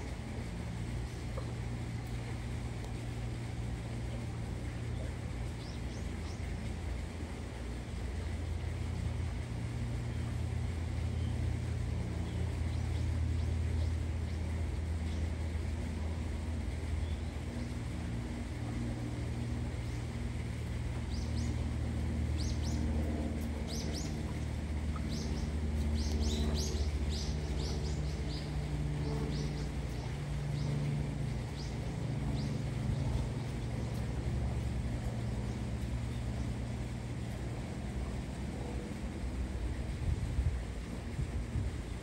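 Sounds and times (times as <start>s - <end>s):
low background rumble: 0.0s - 42.0s
small birds chirping: 4.7s - 6.8s, 19.5s - 37.4s.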